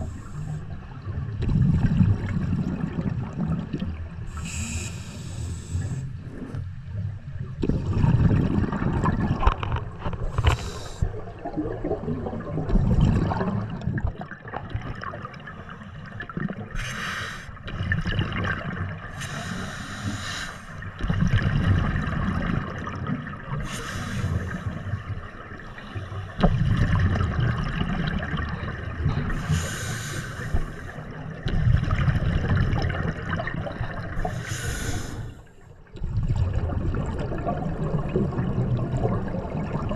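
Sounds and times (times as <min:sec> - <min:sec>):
bubbles rushing and gurgling: 0:00.0 - 0:39.9
low rumble of water: 0:00.0 - 0:39.9
diver breathing through regulator: 0:04.3 - 0:06.5, 0:10.3 - 0:11.1, 0:16.8 - 0:17.6, 0:19.1 - 0:20.8, 0:23.6 - 0:25.0, 0:29.3 - 0:31.2, 0:34.2 - 0:35.5.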